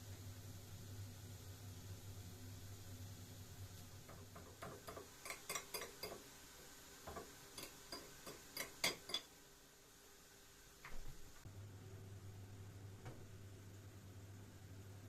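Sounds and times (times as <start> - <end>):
dishes and cutlery clinking: 4.6 - 6.2, 7.1 - 9.3.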